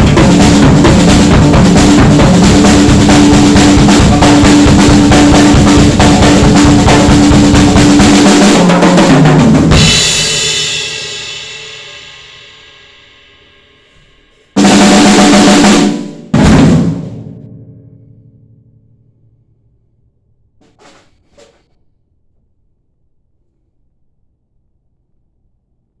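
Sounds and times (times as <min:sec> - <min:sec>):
drum kit played fast: 0:00.0 - 0:17.5, 0:20.6 - 0:21.7.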